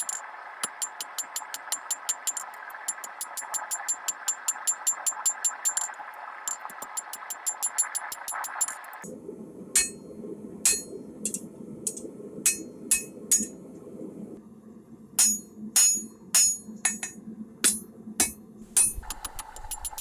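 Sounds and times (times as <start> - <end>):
low hum: 9.0 - 20.0
hammer striking steel on anvil: 9.8 - 10.0, 10.7 - 13.5, 15.2 - 19.1.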